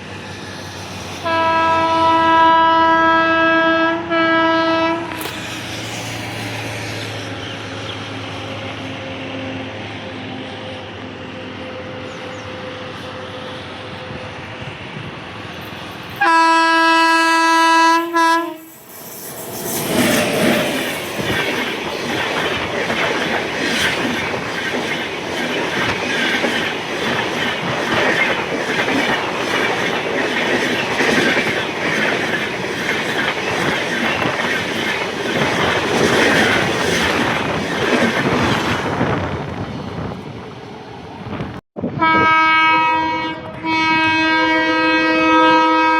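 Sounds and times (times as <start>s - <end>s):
train horn: 1.2s - 5.4s, 16.2s - 18.8s, 41.8s - 45.9s
train wheels clattering: 18.8s - 39.2s.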